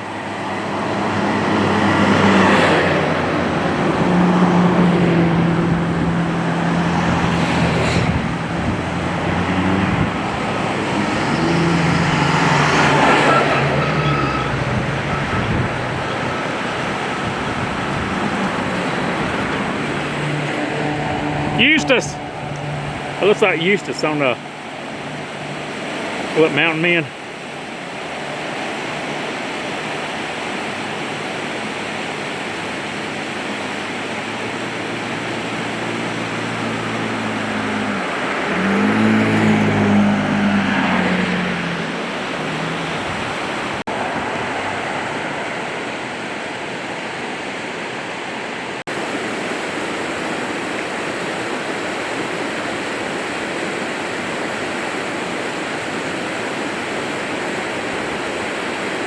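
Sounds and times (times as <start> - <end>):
vehicle engine passing by: 0.0 - 46.4
flowing water: 0.0 - 59.0.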